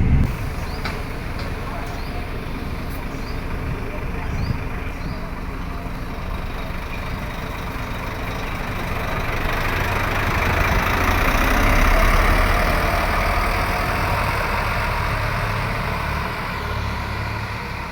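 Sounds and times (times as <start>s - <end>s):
bus diesel engine rumble: 0.0s - 17.9s.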